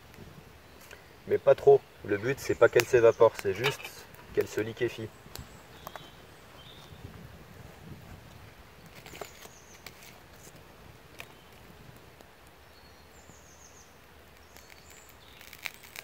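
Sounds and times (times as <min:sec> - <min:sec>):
oil crackling in a pan: 0:14.1 - 0:16.0.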